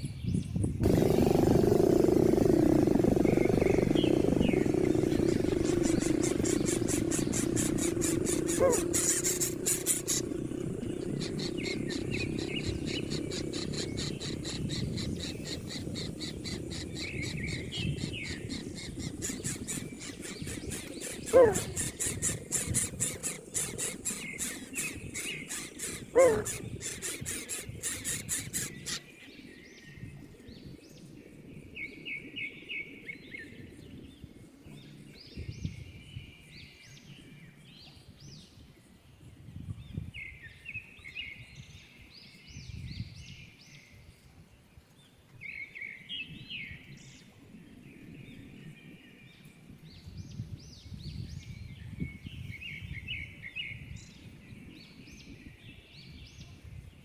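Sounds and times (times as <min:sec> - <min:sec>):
bird chirps and trills: 0:00.0 - 0:30.2
shrill high-pitched squealing: 0:20.4 - 0:29.0.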